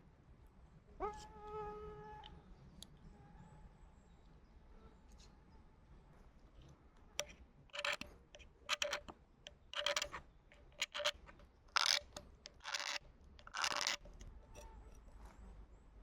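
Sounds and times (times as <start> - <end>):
scraping strokes by hand: 9.8 - 15.1.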